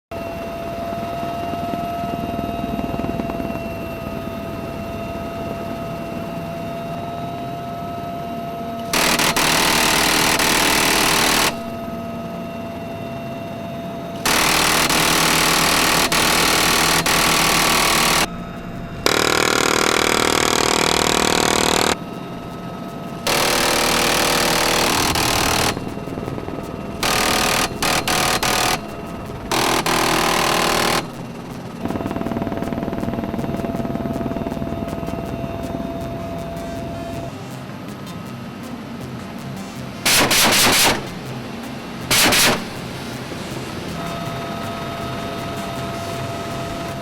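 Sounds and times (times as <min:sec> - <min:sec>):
steady whine: 0:00.1 - 0:47.0
machine gun firing: 0:08.9 - 0:11.9, 0:14.2 - 0:18.3, 0:23.3 - 0:33.2, 0:40.1 - 0:41.3, 0:42.1 - 0:42.9.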